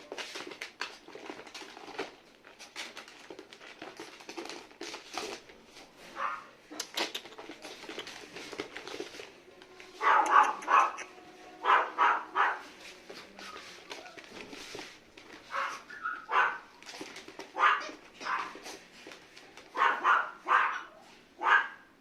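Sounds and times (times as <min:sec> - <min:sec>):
light clicks and scuffling: 0:00.0 - 0:10.8, 0:12.6 - 0:20.0
puppy yapping: 0:06.2 - 0:07.0, 0:10.0 - 0:12.7, 0:15.5 - 0:16.8, 0:17.5 - 0:18.6, 0:19.8 - 0:21.9.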